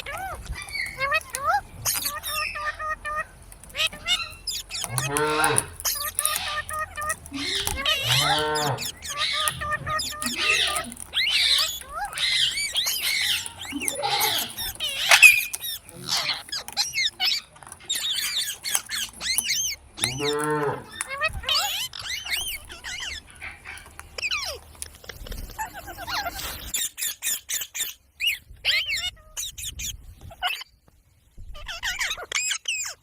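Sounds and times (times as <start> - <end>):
parrot low call: 0.0 - 17.4
parrots squawking and chirping: 0.0 - 30.8, 31.4 - 33.0.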